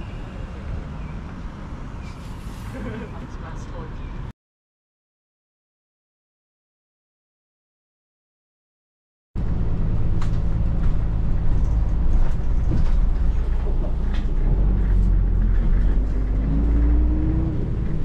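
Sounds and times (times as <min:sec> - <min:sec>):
rising engine whine: 0:09.4 - 0:18.0
vehicle engine rumbling: 0:09.4 - 0:18.0.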